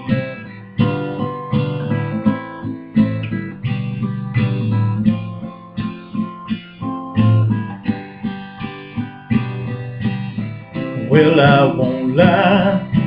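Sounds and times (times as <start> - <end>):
acoustic guitar playing: 0.0 - 13.0
person singing: 11.0 - 13.0.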